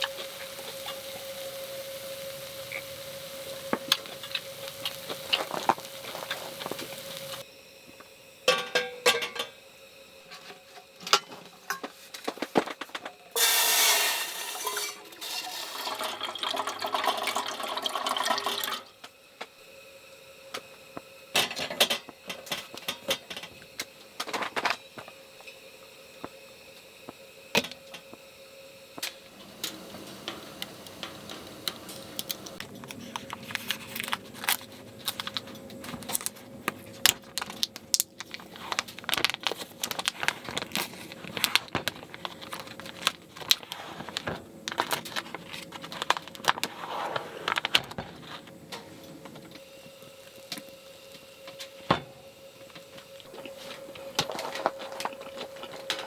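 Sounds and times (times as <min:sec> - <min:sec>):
dishes clinking and knocking: 0:08.5 - 0:09.6, 0:13.4 - 0:18.7
water pouring into vessel: 0:13.4 - 0:18.9.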